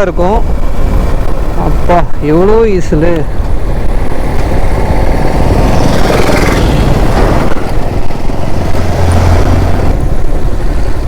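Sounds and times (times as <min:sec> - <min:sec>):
wind rushing over microphone: 0:00.0 - 0:11.0
motorcycle engine: 0:03.2 - 0:11.0.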